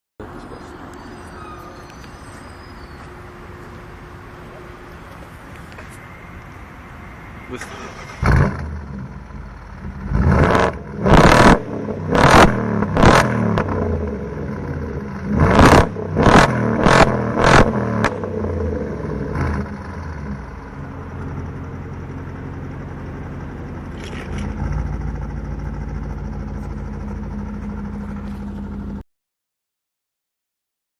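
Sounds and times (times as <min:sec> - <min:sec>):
engine idling: 0:00.2 - 0:11.0, 0:18.2 - 0:29.0
engine revving: 0:07.2 - 0:20.6, 0:23.3 - 0:28.8.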